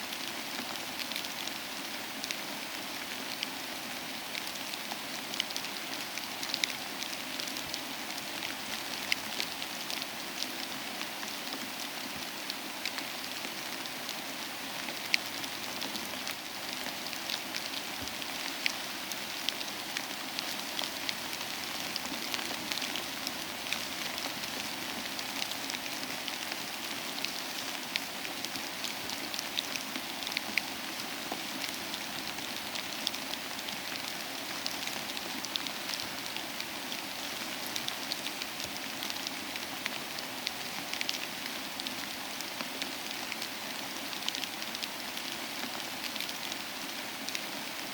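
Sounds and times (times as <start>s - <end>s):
soft rain: 0.0s - 47.9s.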